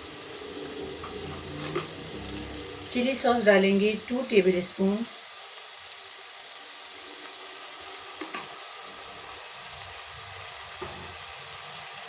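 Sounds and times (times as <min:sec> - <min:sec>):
food sizzling in frying pan: 0:00.0 - 0:12.0.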